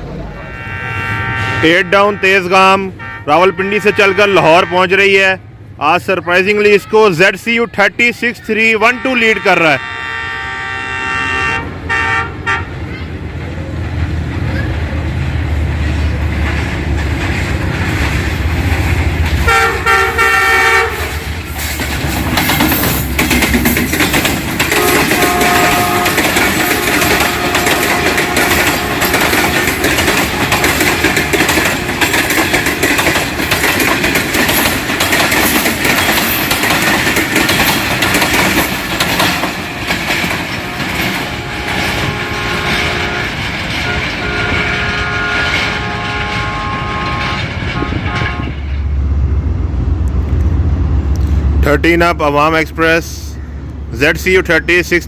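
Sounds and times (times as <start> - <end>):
locomotive engine rumble: 0.0 - 55.0
locomotive horn blast: 0.2 - 5.3, 8.7 - 12.9, 19.4 - 21.3, 24.7 - 31.0, 40.6 - 48.8
train wheels clattering over rail joints: 13.3 - 49.0.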